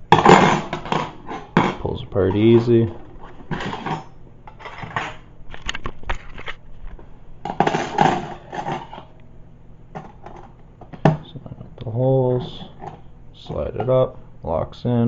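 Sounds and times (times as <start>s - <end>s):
metal cutlery clinking and rattling: 3.5s - 5.2s, 7.5s - 9.1s.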